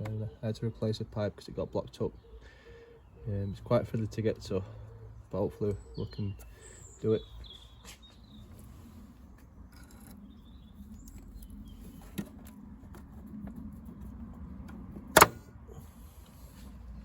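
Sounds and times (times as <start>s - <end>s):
sharp plastic snap: 14.6s - 15.4s.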